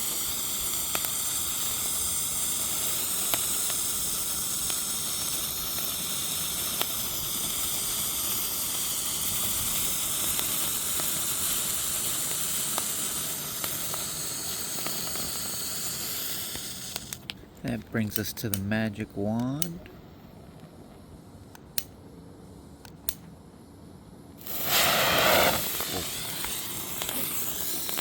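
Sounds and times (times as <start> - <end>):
firework hissing: 0.0 - 17.4, 24.2 - 28.0
sharp pops: 9.7 - 20.0, 24.4 - 28.0.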